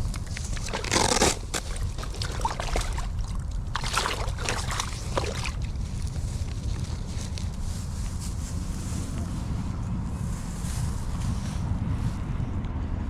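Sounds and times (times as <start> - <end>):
loud rustle or splash: 0.0 - 7.8
wind rumbling on microphone: 0.0 - 13.0.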